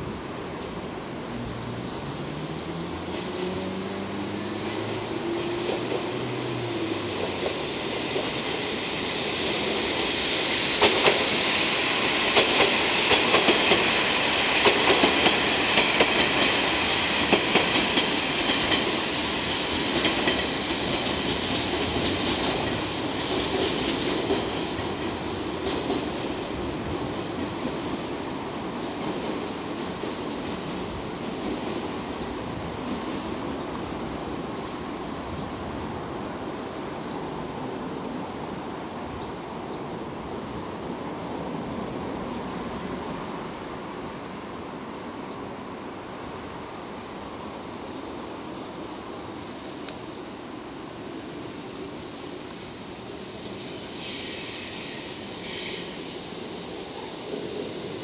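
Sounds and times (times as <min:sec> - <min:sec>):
wheels clacking over rail joints: 0:12.2 - 0:26.4.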